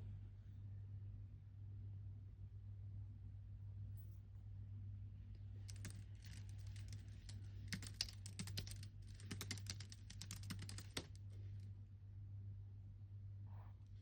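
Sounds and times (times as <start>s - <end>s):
keyboard key clicks: 7.7s - 11.1s.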